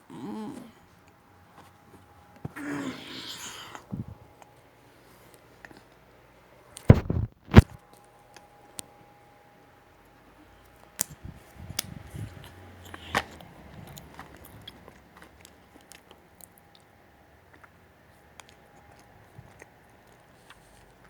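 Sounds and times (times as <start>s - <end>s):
crunchy bites: 6.9s - 7.8s.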